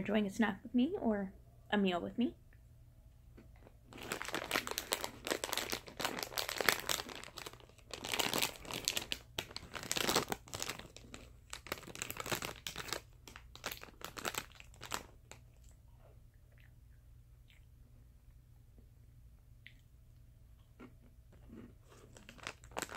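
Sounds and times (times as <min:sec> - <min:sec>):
plastic snack bag crackling: 0:03.9 - 0:15.4, 0:21.9 - 0:22.9.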